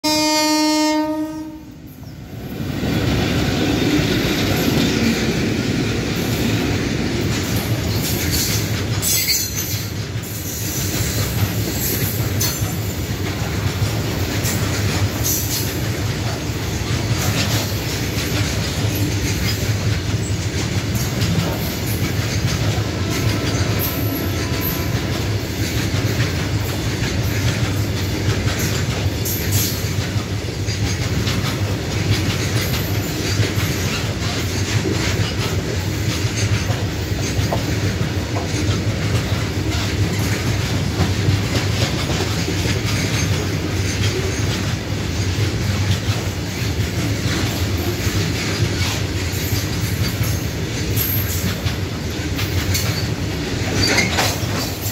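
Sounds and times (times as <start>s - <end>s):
locomotive horn blast: 0.0s - 1.8s, 22.9s - 25.4s
train wheels rumbling on rails: 0.0s - 54.9s
clickety-clack over rail joints: 0.1s - 54.9s.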